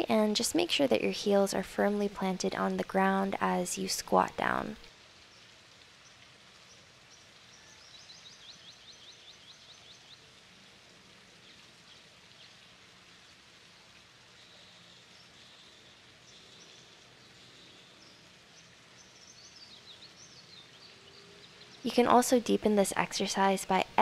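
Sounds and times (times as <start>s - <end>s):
steady background hiss: 0.0s - 24.0s
small bird chirping: 14.4s - 21.9s.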